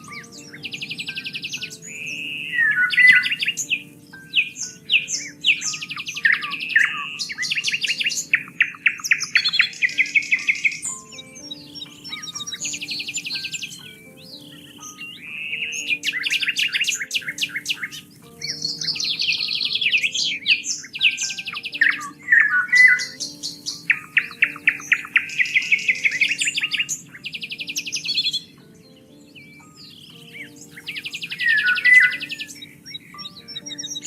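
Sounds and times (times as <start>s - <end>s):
soft background music: 0.0s - 34.0s
songbirds singing: 0.0s - 34.0s.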